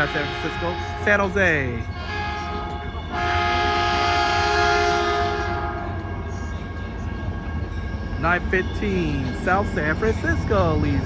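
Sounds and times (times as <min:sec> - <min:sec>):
train horn blast: 0:00.0 - 0:06.5
train rumble: 0:00.0 - 0:11.0.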